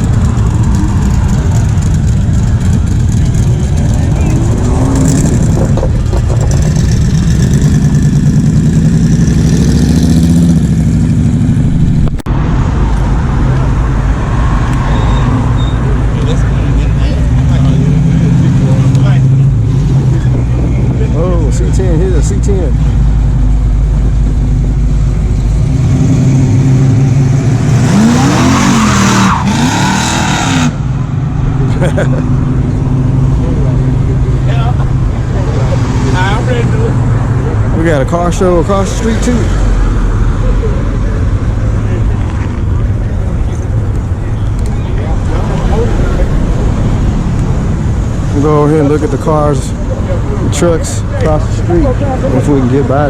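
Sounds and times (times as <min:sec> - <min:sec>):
tires squealing: 0:00.0 - 0:10.4, 0:14.0 - 0:23.1, 0:25.4 - 0:40.9
car engine running: 0:00.0 - 0:14.2
car engine revving: 0:00.0 - 0:53.0.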